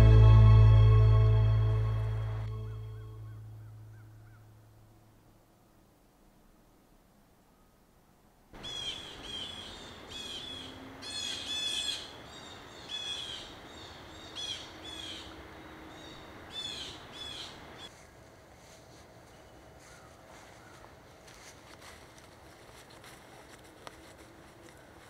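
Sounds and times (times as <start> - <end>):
birds calling: 8.6 - 17.9.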